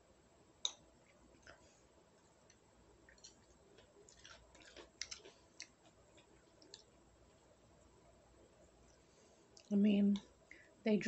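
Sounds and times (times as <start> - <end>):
faint chewing clicks: 0.6 - 7.4, 8.8 - 10.6.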